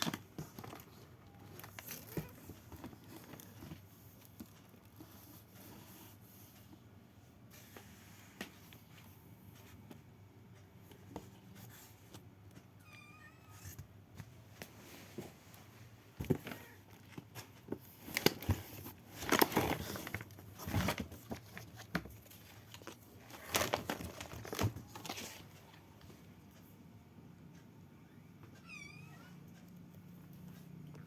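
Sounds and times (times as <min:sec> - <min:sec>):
cat meowing: 0:12.8 - 0:13.7.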